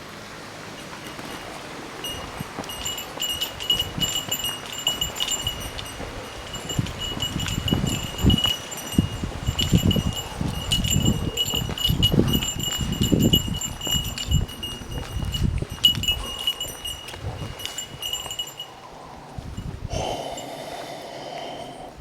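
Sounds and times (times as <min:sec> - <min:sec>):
small bell jingling: 0:00.8 - 0:18.9
low thumps and rumble: 0:05.1 - 0:16.2.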